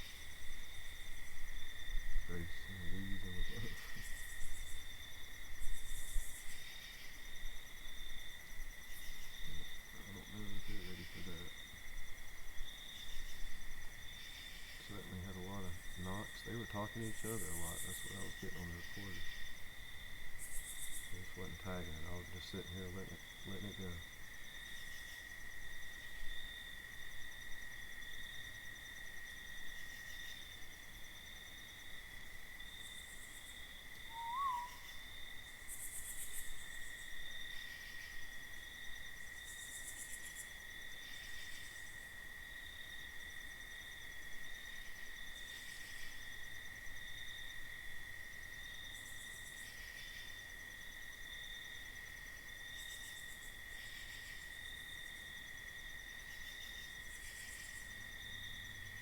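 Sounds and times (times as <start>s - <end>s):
night insects droning: 0.0s - 59.0s
rising and falling call: 34.1s - 34.8s.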